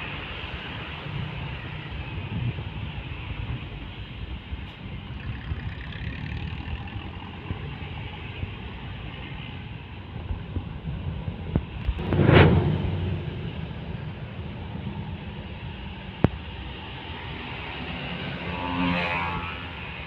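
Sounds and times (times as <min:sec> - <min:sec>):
road traffic rumble: 0:00.0 - 0:20.0
vehicle passing close by: 0:11.9 - 0:16.0.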